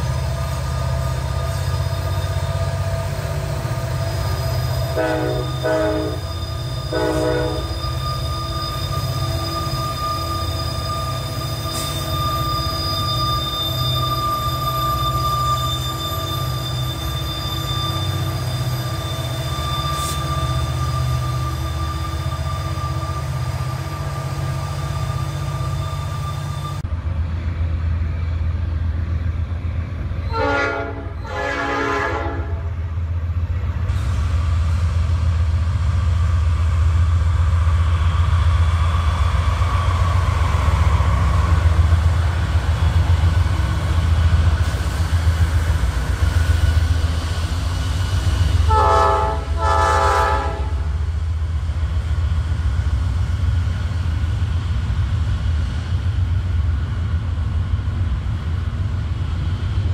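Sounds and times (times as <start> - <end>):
freight train rumble: 0.0 - 59.9
locomotive horn blasts: 4.9 - 6.3, 6.9 - 7.8, 30.3 - 32.7, 48.7 - 50.9.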